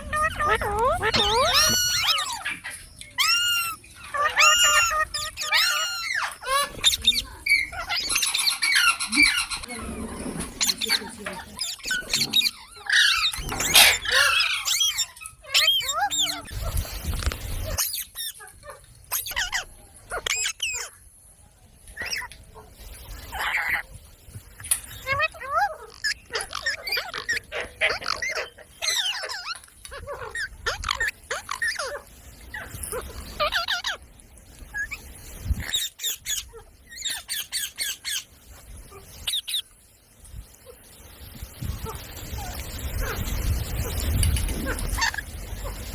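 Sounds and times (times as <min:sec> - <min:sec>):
parrot harsh screech: 0:00.0 - 0:02.5, 0:03.2 - 0:09.6, 0:11.7 - 0:16.5
parrot chirping and whistling: 0:00.0 - 0:09.6, 0:11.6 - 0:16.6
parrot squawking and chirping: 0:00.0 - 0:21.0, 0:22.0 - 0:22.4, 0:23.2 - 0:23.9, 0:24.9 - 0:34.0, 0:34.7 - 0:39.7, 0:43.9 - 0:45.9.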